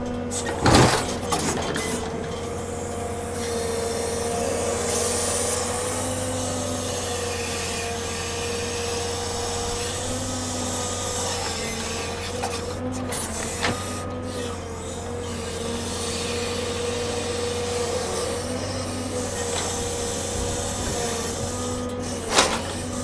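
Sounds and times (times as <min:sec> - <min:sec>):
hydraulic loader whine: 0:00.0 - 0:23.0
truck engine hum: 0:00.0 - 0:23.0
logs scraping: 0:09.0 - 0:23.0.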